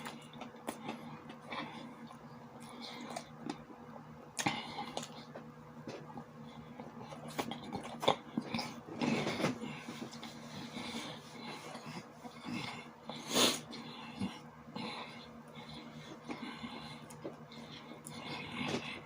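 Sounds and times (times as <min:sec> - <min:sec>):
chewing and mouth smacking: 0:00.0 - 0:12.4.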